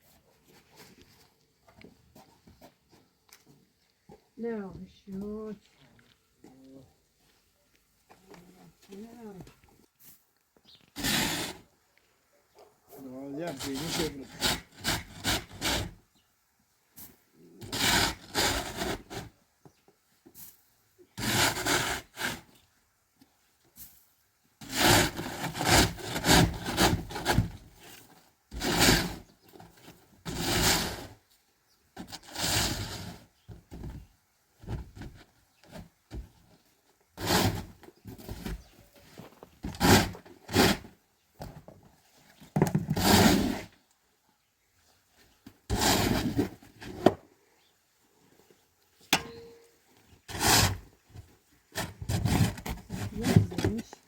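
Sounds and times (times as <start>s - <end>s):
rough scraping on wood: 10.7s - 11.7s, 13.4s - 16.1s, 17.6s - 19.4s, 21.2s - 22.6s, 24.6s - 31.3s, 32.0s - 34.0s, 34.6s - 43.8s, 45.4s - 47.2s, 50.0s - 54.0s.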